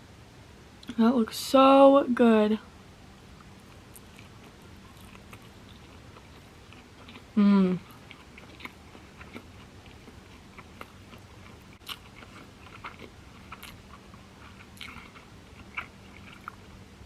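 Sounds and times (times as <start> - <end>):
faint low hum: 0.0 - 17.0
person chewing food: 3.3 - 16.8.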